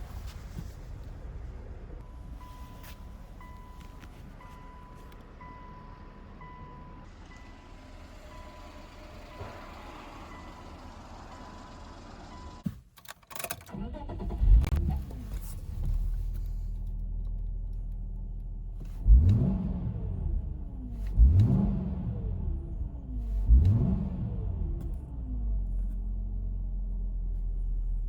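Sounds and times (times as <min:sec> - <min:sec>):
car engine starting and revving: 0:06.4 - 0:12.6, 0:13.3 - 0:28.0.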